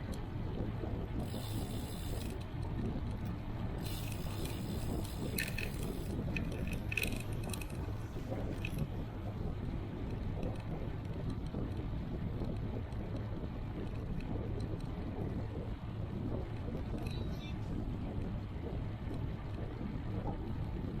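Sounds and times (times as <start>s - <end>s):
bicycle road rumble: 0.0s - 21.0s
wind on microphone: 0.0s - 21.0s
freewheel ticking: 1.2s - 2.6s, 3.2s - 8.9s.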